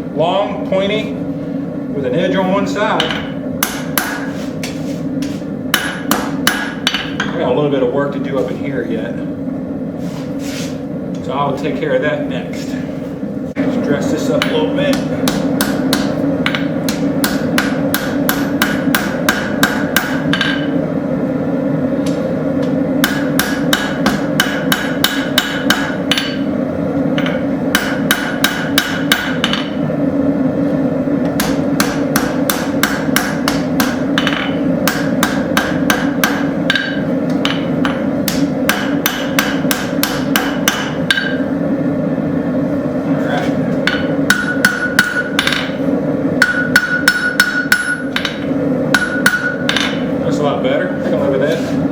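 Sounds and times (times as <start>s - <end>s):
hammer striking hot metal on anvil: 3.0s - 4.4s, 5.7s - 7.4s, 14.3s - 20.8s, 23.0s - 26.5s, 27.2s - 29.8s, 31.3s - 41.5s, 43.8s - 45.8s, 46.4s - 50.1s
anvil ringing: 38.7s - 41.5s, 43.9s - 45.8s, 46.4s - 50.0s.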